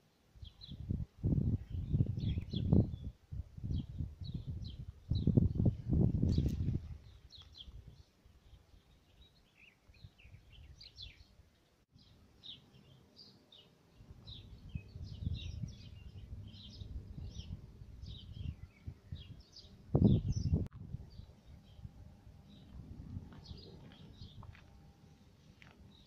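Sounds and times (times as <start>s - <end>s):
songbirds chirping: 0.0s - 26.0s
low fluctuating rumble: 20.2s - 24.4s.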